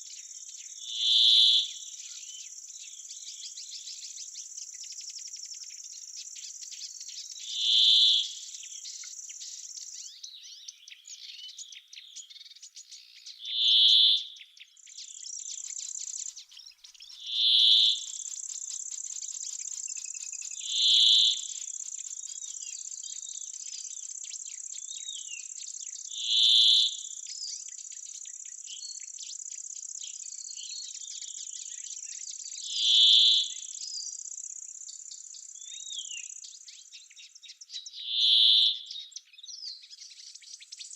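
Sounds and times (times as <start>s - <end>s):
small birds chirping: 0.0s - 40.9s
high insect trill: 17.3s - 23.0s.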